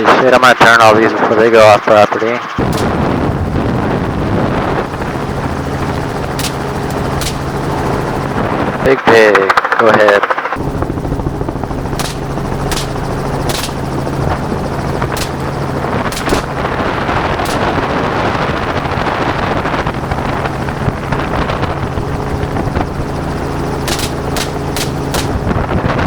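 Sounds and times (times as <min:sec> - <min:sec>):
helicopter running: 0:02.2 - 0:26.0
gunshots: 0:02.6 - 0:03.5, 0:06.4 - 0:07.8, 0:12.0 - 0:14.4, 0:15.1 - 0:18.3, 0:23.8 - 0:25.6.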